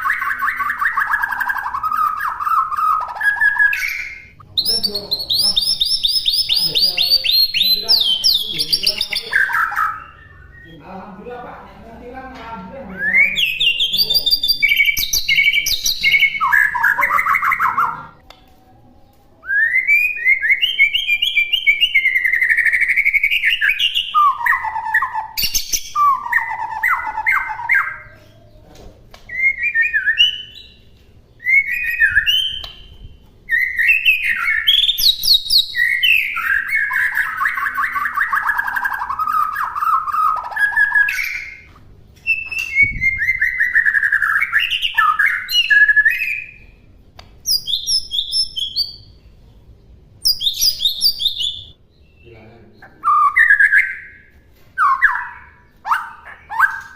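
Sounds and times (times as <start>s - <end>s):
songbird singing whistles and trills: 0.0s - 10.8s, 12.9s - 18.2s, 19.4s - 28.5s, 29.3s - 49.3s, 50.2s - 56.9s.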